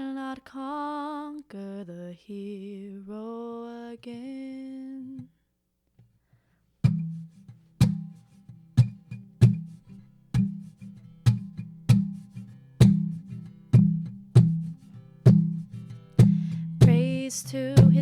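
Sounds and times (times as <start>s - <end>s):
acoustic guitar strumming: 6.8s - 18.0s.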